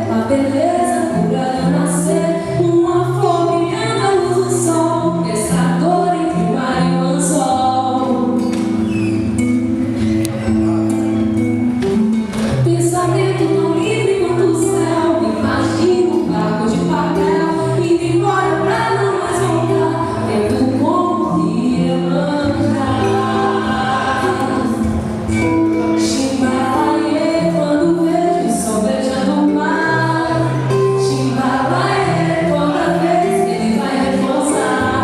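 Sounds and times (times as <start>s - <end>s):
instrumental accompaniment: 0.0s - 35.0s
person singing: 12.7s - 25.0s, 25.9s - 35.0s.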